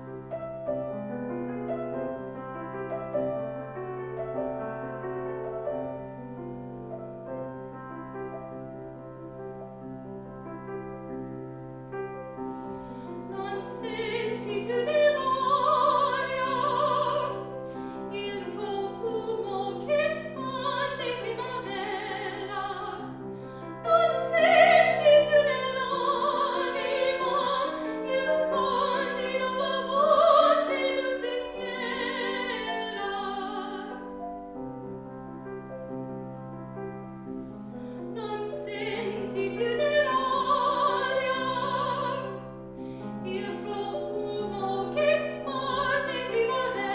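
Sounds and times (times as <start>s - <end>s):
piano chords: 0.0s - 46.9s
classical singing with vibrato: 10.9s - 34.7s, 37.4s - 46.9s.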